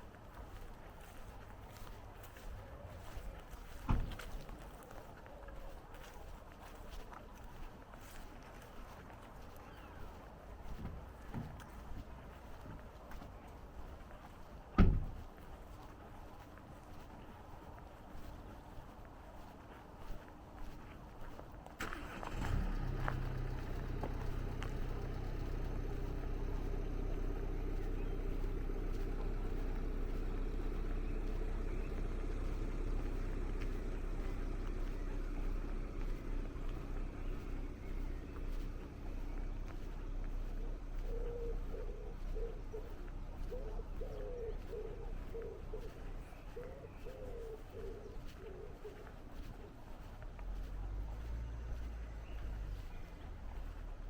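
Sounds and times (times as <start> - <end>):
engine running steadily: 0.0 - 54.0
wood pigeon cooing: 40.1 - 49.6.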